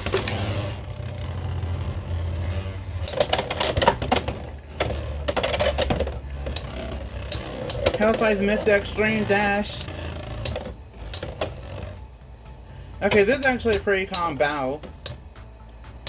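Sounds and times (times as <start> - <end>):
spinning tops whirring: 0.0 - 16.0
spinning tops clicking and clacking: 2.4 - 12.1, 13.0 - 16.0.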